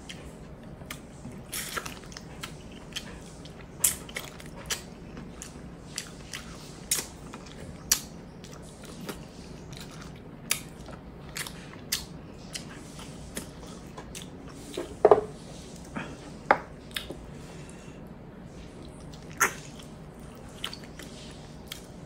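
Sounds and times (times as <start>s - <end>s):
wet chewing: 0.8s - 15.0s, 18.8s - 22.0s.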